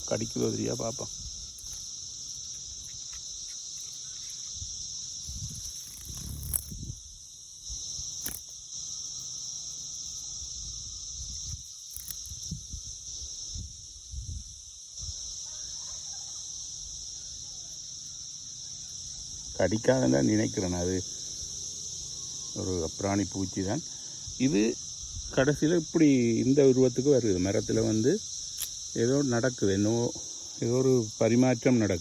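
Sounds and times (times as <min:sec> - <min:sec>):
cicadas buzzing: 0:00.0 - 0:32.0.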